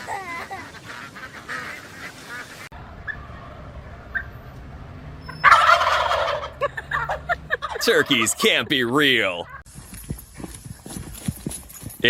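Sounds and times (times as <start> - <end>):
turkeys gobbling: 0.0 - 3.2, 4.1 - 4.4, 5.3 - 9.7.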